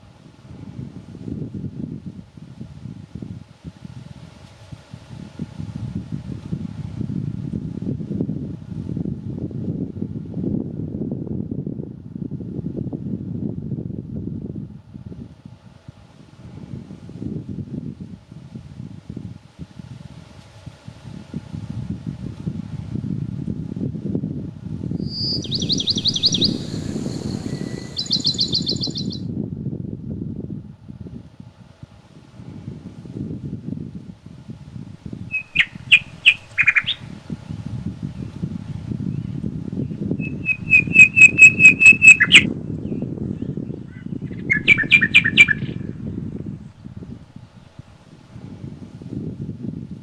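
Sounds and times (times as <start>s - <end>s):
low wind through forest: 0.0s - 50.0s
songbird singing: 25.0s - 29.2s, 35.3s - 37.1s, 39.2s - 45.9s.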